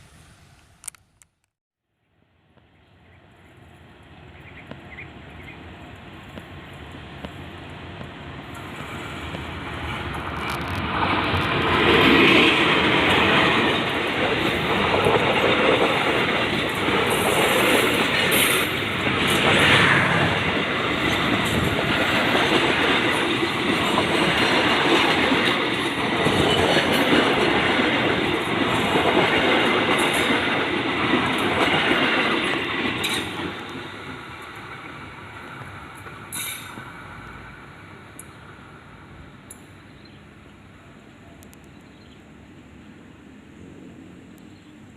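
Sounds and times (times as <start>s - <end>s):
train wheels clattering on rails: 8.0s - 37.4s
train wheel squeal: 36.3s - 36.9s.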